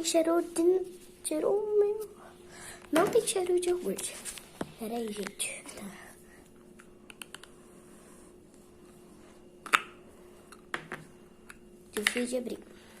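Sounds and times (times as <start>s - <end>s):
lid snapping: 9.6s - 9.9s.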